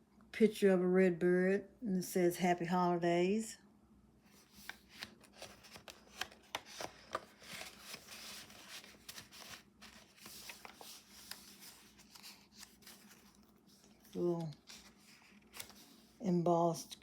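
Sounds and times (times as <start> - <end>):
paper pages rustling: 4.3 - 16.2.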